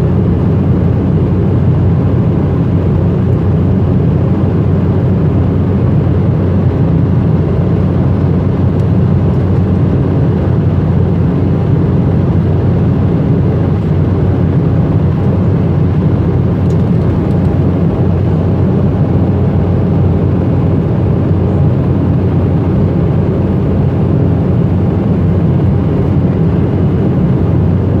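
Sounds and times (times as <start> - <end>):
aircraft cabin engine rumble: 0.0 - 28.0
constant droning hum: 0.0 - 28.0.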